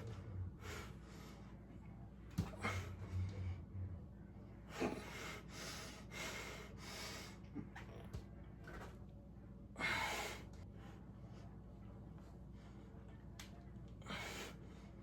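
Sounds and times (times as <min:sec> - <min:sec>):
person breathing hard: 0:04.7 - 0:07.5, 0:09.8 - 0:10.6.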